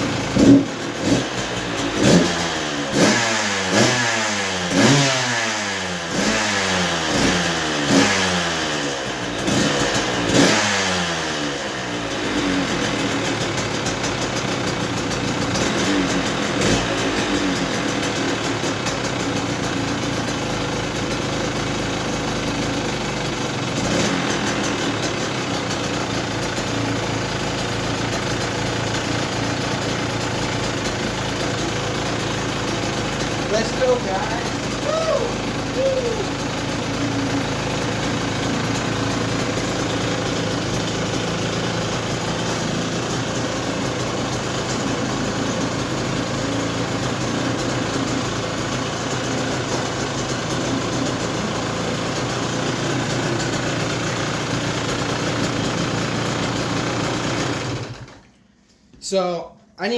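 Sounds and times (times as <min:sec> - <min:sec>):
two-stroke engine revving and idling: 0:00.0 - 0:58.3.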